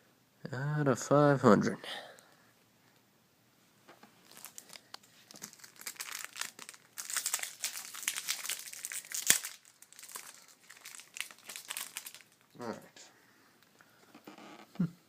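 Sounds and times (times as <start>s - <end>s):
foil wrapper crinkling and tearing: 4.2s - 12.6s.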